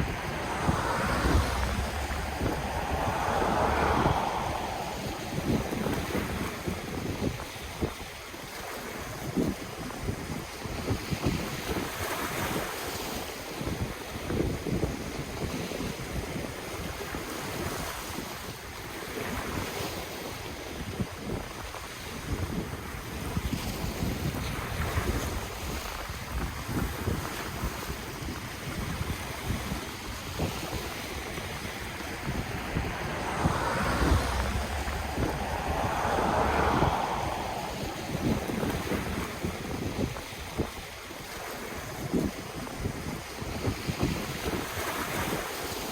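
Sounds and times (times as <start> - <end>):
ocean waves breaking: 0.0 - 7.8, 26.9 - 45.9
wind on microphone: 0.0 - 18.0, 20.8 - 45.9.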